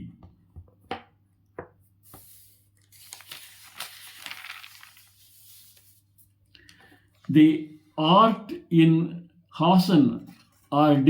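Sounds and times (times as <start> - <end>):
rustling crinkling noise: 2.1 - 6.3.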